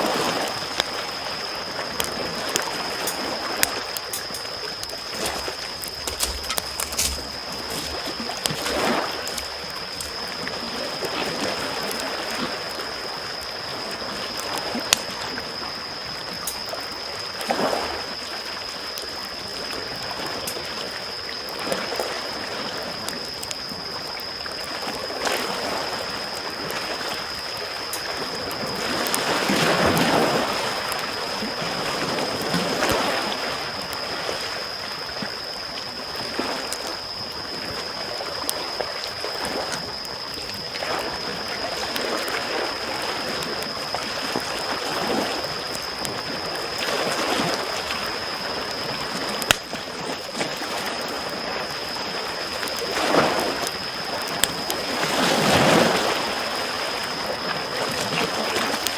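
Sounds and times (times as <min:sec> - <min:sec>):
small waves lapping on shore: 0:00.0 - 0:58.9
campfire crackling and popping: 0:00.1 - 0:58.9
thin steady high tone: 0:33.7 - 0:58.9.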